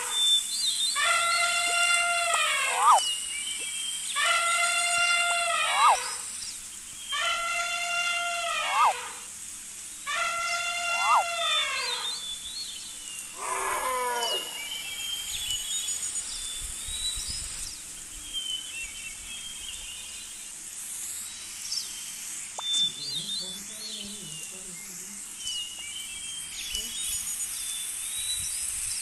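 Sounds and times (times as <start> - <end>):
small birds chirping: 0.0 - 7.8, 8.4 - 29.0
loud pitched animal call: 1.0 - 3.1, 4.2 - 6.3, 7.1 - 9.3, 10.1 - 12.3, 13.3 - 15.2.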